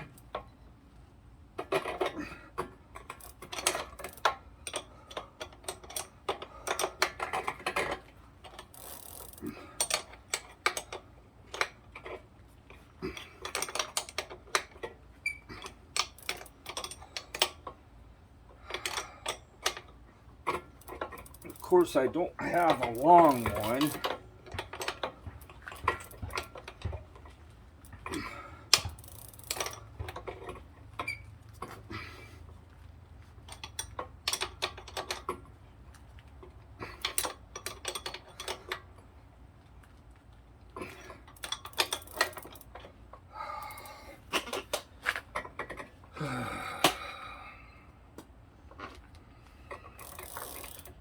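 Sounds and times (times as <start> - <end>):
wrench clicking and knocking on metal: 1.6 - 12.2, 15.6 - 17.7, 20.5 - 31.7, 41.3 - 42.9, 49.7 - 51.0
squeaky creaks: 31.0 - 31.3.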